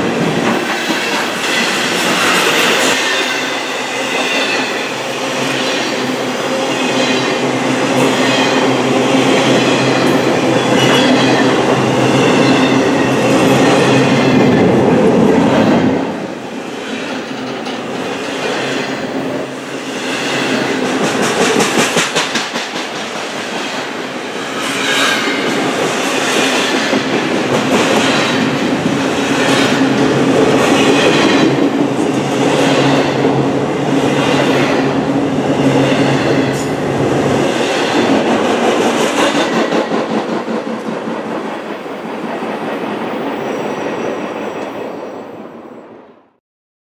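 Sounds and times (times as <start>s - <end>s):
freight train wheels rumbling: 0.0s - 45.9s
wheels clacking over rail joints: 20.3s - 23.9s.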